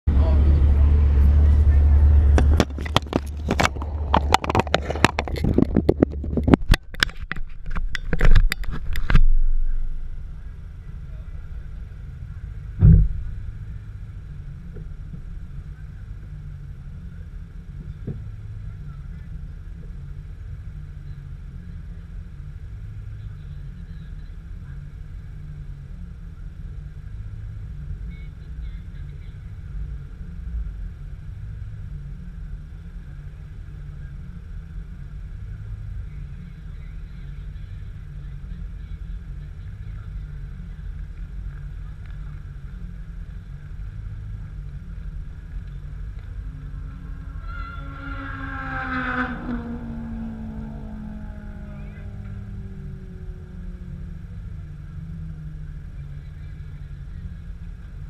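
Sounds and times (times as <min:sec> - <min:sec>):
car engine idling: 0:00.0 - 0:58.0
thump: 0:12.8 - 0:13.4.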